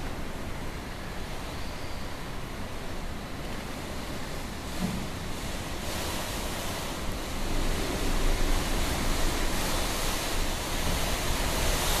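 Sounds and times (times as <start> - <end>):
strong gusting wind: 0.0 - 12.0.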